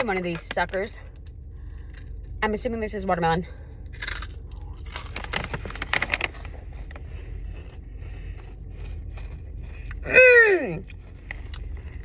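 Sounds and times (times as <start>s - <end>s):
low rumble: 0.0s - 12.0s
hard candy crunching: 3.6s - 12.0s.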